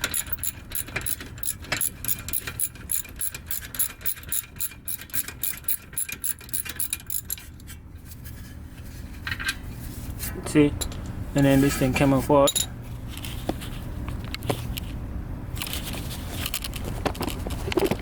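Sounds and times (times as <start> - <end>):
ratchet wrench clicking: 0.0 - 7.5.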